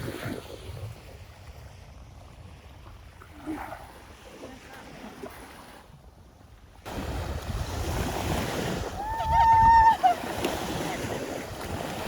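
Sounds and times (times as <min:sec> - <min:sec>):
wind rumbling on microphone: 0:00.0 - 0:12.0
surf: 0:06.7 - 0:12.0.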